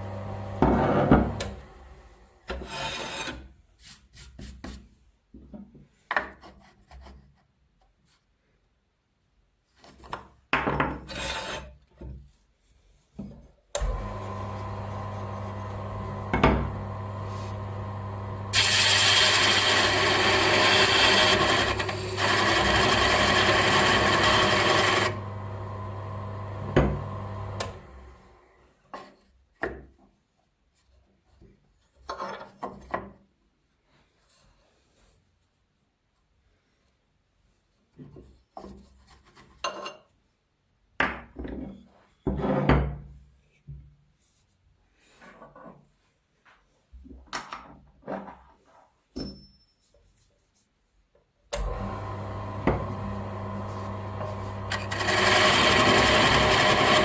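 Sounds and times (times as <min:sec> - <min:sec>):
bench grinder motor humming: 0:00.0 - 0:01.9, 0:13.8 - 0:28.4, 0:51.6 - 0:57.0
rasping sanding noise: 0:18.6 - 0:25.0.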